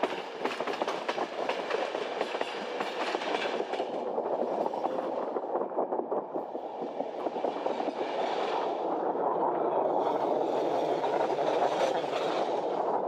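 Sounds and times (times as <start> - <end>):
wheels clattering over rail joints: 0.0 - 5.2
train wheels rumbling: 0.0 - 9.1, 9.8 - 13.0.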